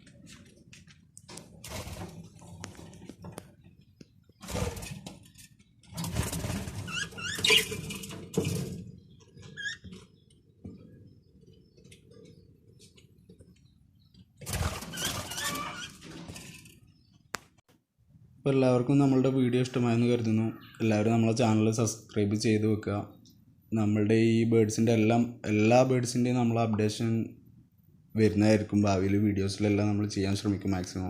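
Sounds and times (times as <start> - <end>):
small birds chirping: 2.6 - 4.5, 6.8 - 16.0, 16.6 - 17.6.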